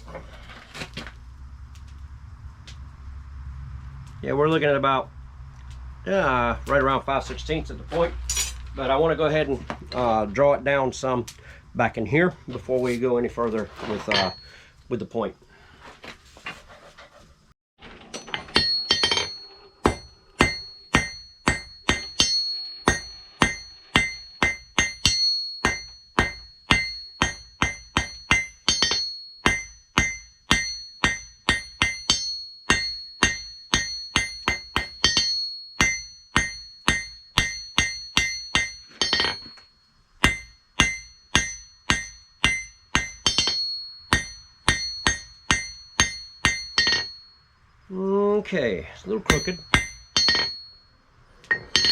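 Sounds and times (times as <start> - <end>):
hammer striking steel on anvil: 14.1 - 14.5, 18.2 - 47.4, 49.3 - 51.9.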